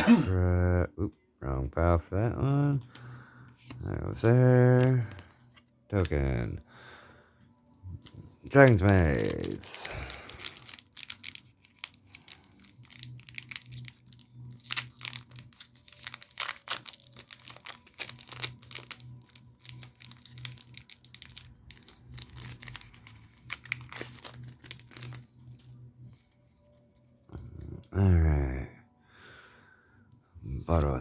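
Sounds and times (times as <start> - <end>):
cards being handled: 2.4 - 6.6, 7.4 - 27.8
foil wrapper tearing and crinkling: 8.1 - 26.7.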